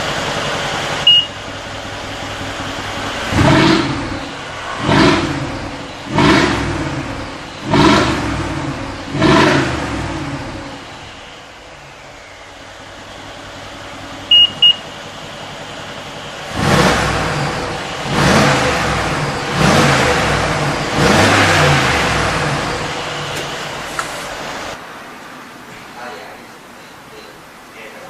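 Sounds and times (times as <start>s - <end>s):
car exhaust idling and revving: 0.0s - 24.8s
short electronic beeps: 1.0s - 1.4s, 14.3s - 15.0s.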